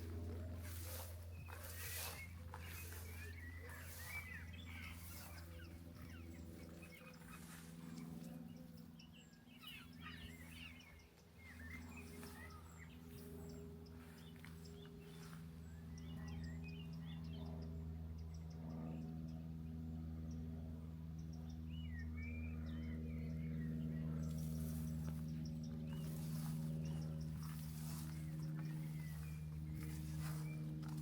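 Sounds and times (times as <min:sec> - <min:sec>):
walking footsteps: 0:00.0 - 0:09.0, 0:09.7 - 0:15.7, 0:24.2 - 0:31.0
songbirds chirping: 0:00.0 - 0:31.0
steady low hum: 0:00.0 - 0:31.0.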